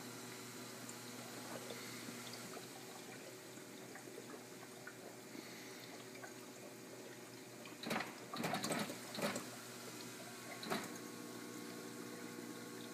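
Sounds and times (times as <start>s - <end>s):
steady hum: 0.0s - 12.9s
ice maker clicking: 7.7s - 9.5s.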